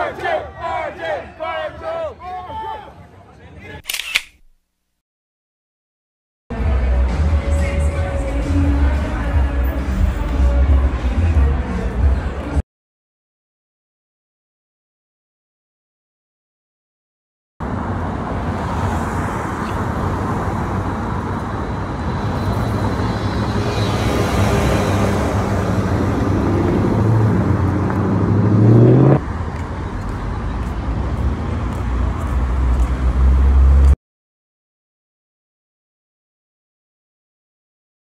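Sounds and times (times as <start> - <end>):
car engine accelerating: 23.5 - 29.2.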